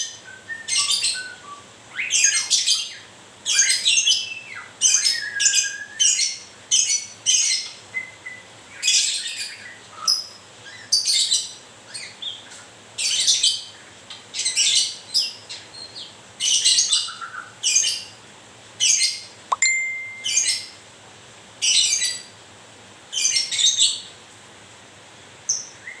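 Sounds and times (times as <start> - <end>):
bird chirping calls: 18.9 - 20.8.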